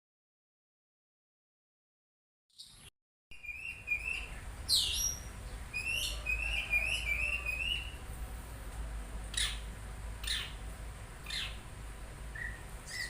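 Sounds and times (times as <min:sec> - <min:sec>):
bird singing: 0:02.5 - 0:08.0, 0:09.3 - 0:10.6, 0:11.2 - 0:11.7, 0:12.3 - 0:13.0.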